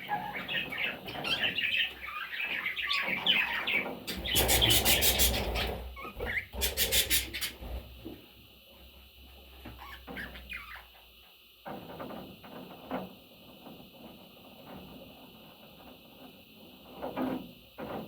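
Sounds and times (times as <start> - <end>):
parrots chirping: 0.0 - 7.8, 9.8 - 11.0.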